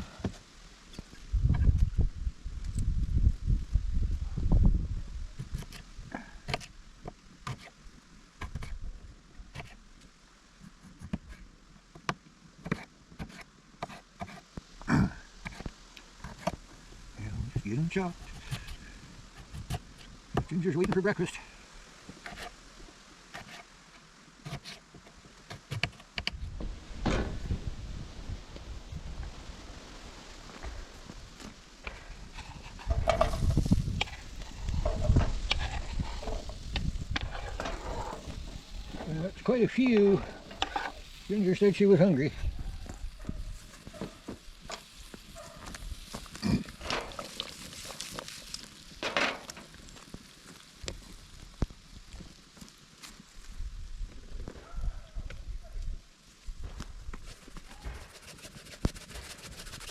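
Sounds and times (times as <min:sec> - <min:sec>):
utensil stirring and scraping: 0:32.2 - 0:44.1, 0:57.9 - 0:59.9.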